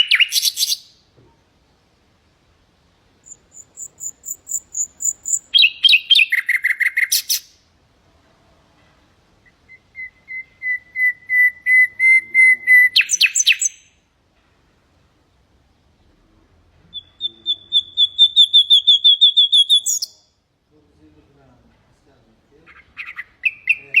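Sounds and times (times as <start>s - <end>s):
nightingale singing: 0.0s - 1.0s, 3.2s - 7.6s, 9.4s - 14.1s, 16.8s - 20.4s, 22.6s - 24.0s.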